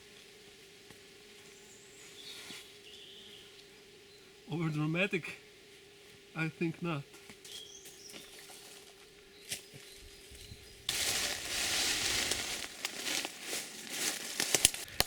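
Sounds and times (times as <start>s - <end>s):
rustling and crackling of leaves: 0.0s - 3.7s, 7.1s - 15.0s.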